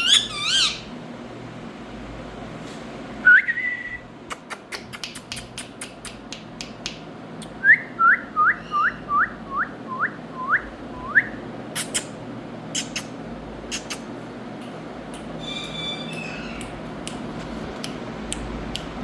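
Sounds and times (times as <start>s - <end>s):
parakeet whistling: 0.0s - 0.9s, 7.6s - 11.4s.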